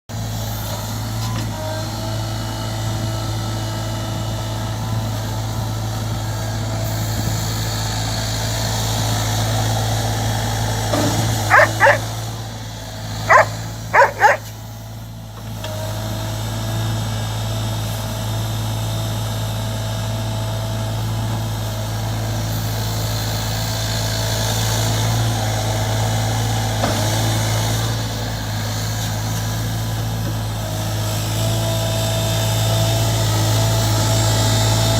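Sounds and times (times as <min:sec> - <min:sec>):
excavator engine running: 0:10.1 - 0:14.6
dog barking: 0:11.5 - 0:12.1, 0:13.3 - 0:14.5.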